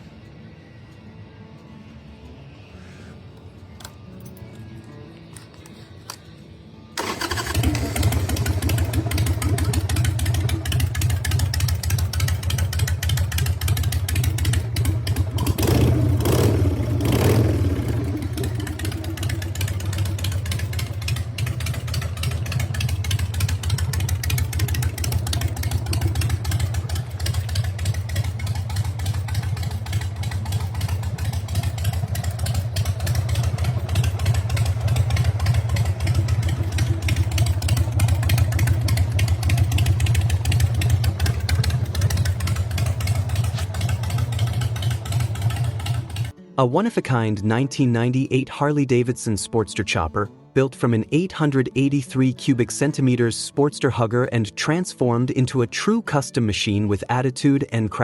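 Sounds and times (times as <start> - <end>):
motorcycle engine idling: 7.0 - 46.4.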